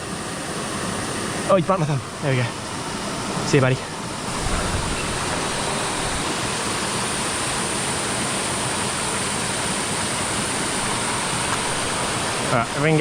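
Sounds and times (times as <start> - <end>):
water rushing over rocks: 3.0 - 7.3, 10.3 - 13.0.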